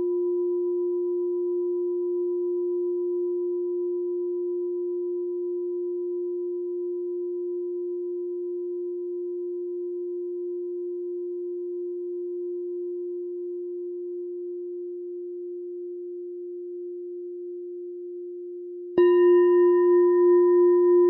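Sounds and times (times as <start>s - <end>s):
meditation bell ringing: 19.0s - 21.0s.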